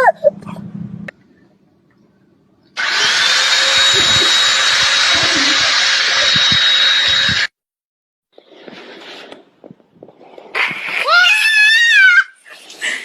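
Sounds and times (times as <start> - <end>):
small electric motor whining: 2.8 - 7.5.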